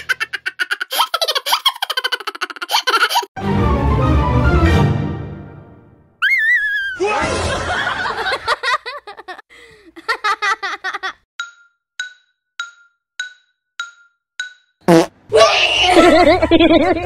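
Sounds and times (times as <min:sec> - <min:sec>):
burst of laughter: 0:07.2 - 0:09.4.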